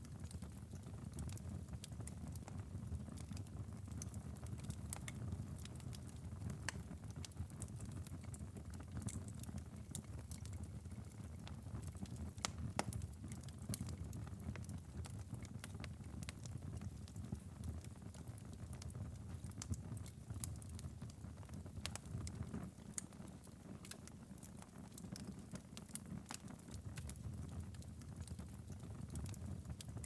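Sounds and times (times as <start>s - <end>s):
fireplace fire crackling: 0.0s - 30.0s.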